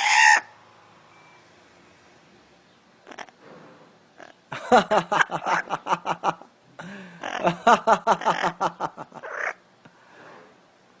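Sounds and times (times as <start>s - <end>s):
parrot laugh-like calls: 4.2s - 6.5s, 7.2s - 9.6s.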